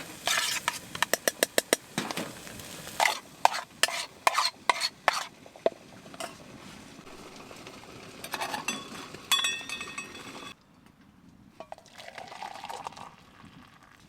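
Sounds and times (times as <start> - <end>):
metal utensils clinking on pans: 6.1 - 6.4, 8.2 - 10.6.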